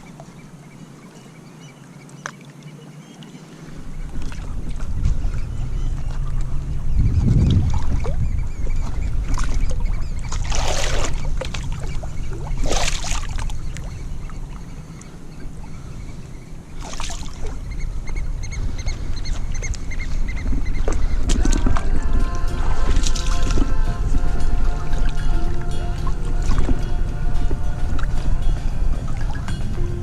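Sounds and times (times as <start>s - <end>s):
waves washing in: 0.0s - 30.0s
wind rumbling on microphone: 3.7s - 30.0s.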